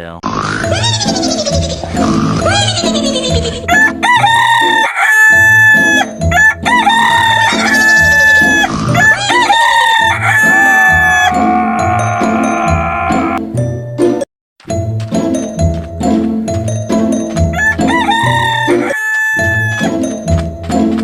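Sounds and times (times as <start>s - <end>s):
rooster crowing: 3.7s - 13.4s, 17.5s - 20.0s.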